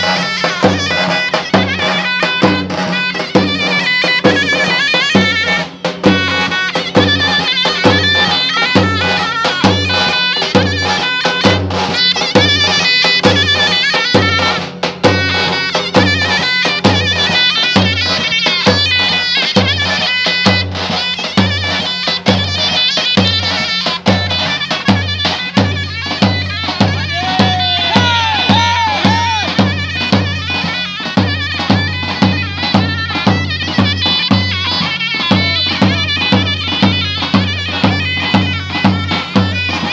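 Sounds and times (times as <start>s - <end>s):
shrill double-reed pipe melody: 0.0s - 39.9s
bass drum beat: 26.8s - 29.7s.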